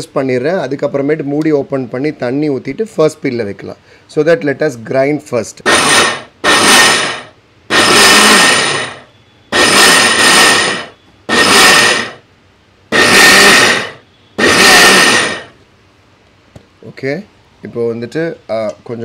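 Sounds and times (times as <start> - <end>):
mixer grinder churning rice: 5.7 - 12.2, 12.9 - 15.6.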